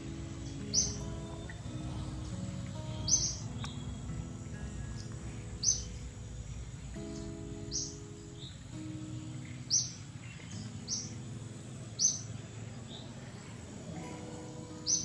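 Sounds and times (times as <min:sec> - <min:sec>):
faint low held notes: 0:00.0 - 0:15.0
steady outdoor hiss: 0:00.0 - 0:15.0
high bird chirps: 0:00.5 - 0:04.0, 0:12.0 - 0:13.0.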